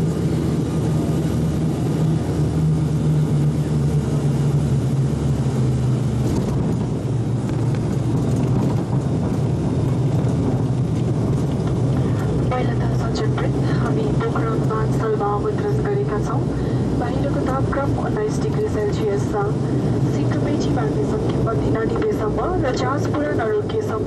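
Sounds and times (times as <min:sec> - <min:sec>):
airliner propeller engine drone: 0:00.0 - 0:24.0.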